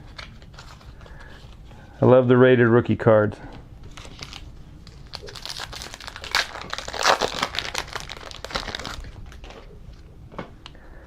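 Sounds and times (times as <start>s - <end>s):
foil wrapper tearing and crinkling: 3.9s - 9.7s.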